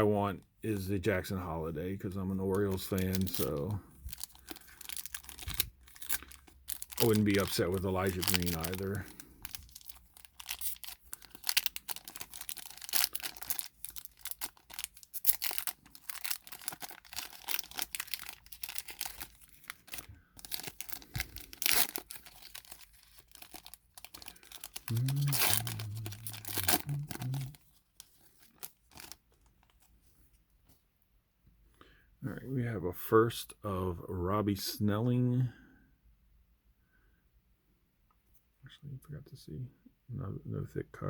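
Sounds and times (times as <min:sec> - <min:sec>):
plastic wrapper tearing and crinkling: 0:02.5 - 0:29.9
short low voice: 0:24.9 - 0:27.6.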